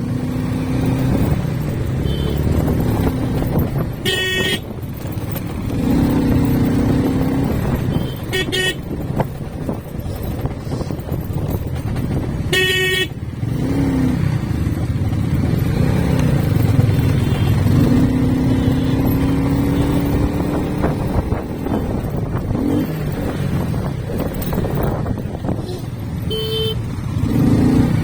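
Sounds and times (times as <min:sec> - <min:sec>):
motorcycle engine and road noise: 0:00.0 - 0:28.0
vehicle horn toot: 0:02.0 - 0:02.5, 0:04.0 - 0:04.7, 0:07.8 - 0:08.9, 0:12.5 - 0:13.2, 0:26.3 - 0:26.9.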